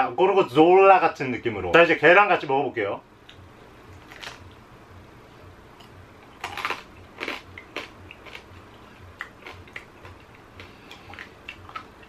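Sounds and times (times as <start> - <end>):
person biting and chewing: 3.9 - 4.6, 5.8 - 12.0
crab shells crunching: 4.0 - 4.6, 5.8 - 12.0.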